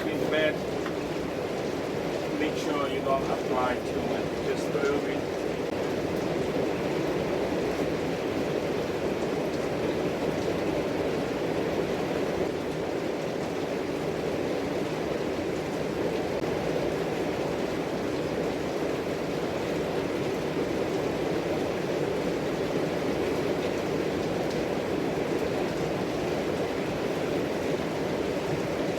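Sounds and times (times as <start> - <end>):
steady background rumble: 2.0 - 5.2.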